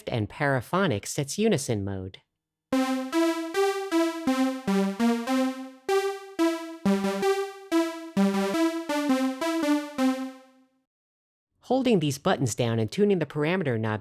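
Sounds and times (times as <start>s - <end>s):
synthesizer playing short notes: 2.8s - 10.6s.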